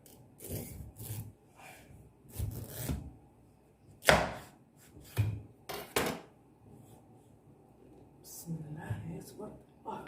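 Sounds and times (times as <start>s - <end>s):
knife chopping pumpkin: 4.0s - 5.4s.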